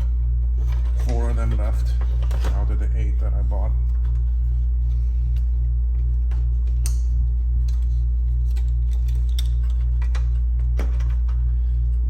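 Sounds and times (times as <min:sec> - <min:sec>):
low electrical hum: 0:00.0 - 0:12.0
small parts clicking: 0:06.8 - 0:10.4.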